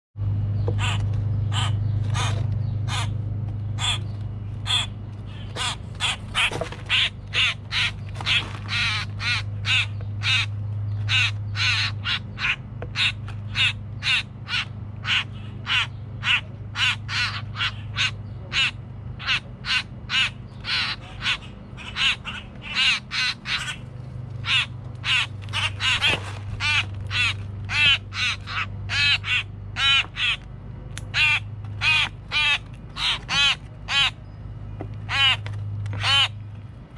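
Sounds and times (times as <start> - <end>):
steady low hum: 0.2 - 36.9
young birds begging calls: 0.6 - 36.4.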